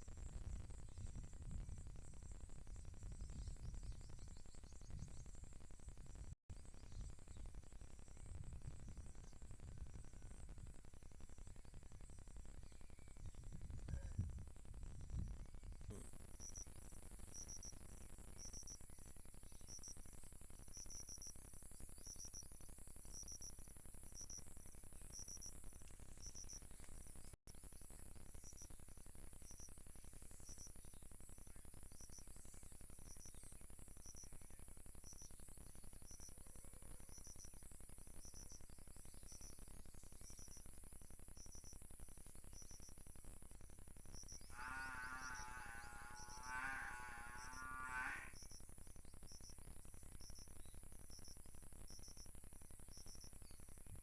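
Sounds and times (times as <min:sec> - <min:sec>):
cricket-like chirping: 0:00.0 - 0:54.0
high-pitched insect drone: 0:37.0 - 0:53.6.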